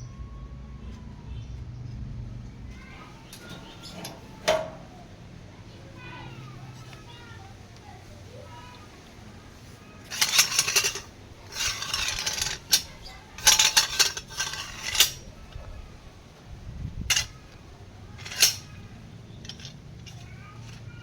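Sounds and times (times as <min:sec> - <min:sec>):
metal parts clinking and scraping: 0:03.1 - 0:05.0, 0:10.0 - 0:15.7, 0:17.0 - 0:21.0
sharp metal clanks: 0:03.2 - 0:05.0, 0:10.1 - 0:15.3, 0:18.2 - 0:20.8.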